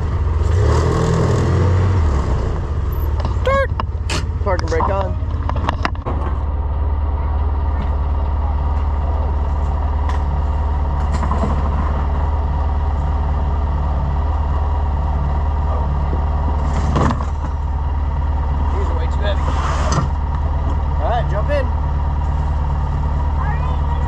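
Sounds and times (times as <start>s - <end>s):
utility vehicle engine idling: 0.0s - 24.0s.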